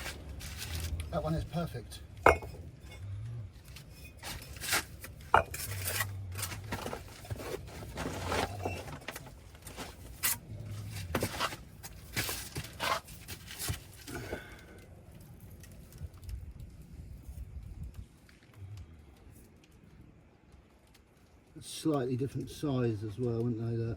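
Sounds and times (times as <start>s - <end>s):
trowel scraping on brick: 3.7s - 13.9s.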